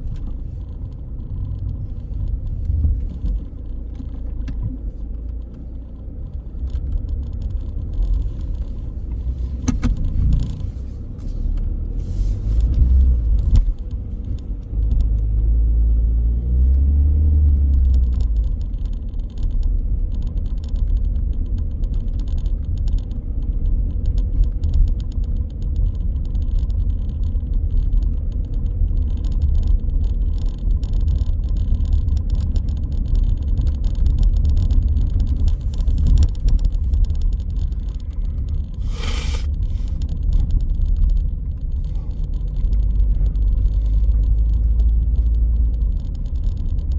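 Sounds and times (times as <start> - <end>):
car engine and tyres rumbling: 0.0 - 46.9
brief hiss: 38.8 - 39.9.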